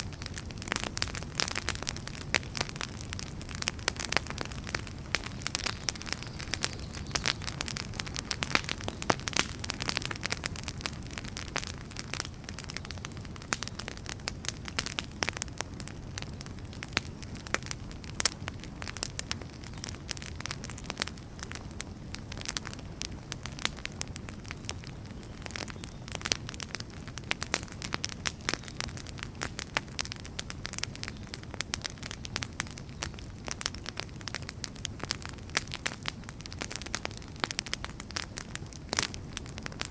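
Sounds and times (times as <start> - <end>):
low rumble of flame: 0.0 - 39.9
wood fire crackling and popping: 0.0 - 39.9.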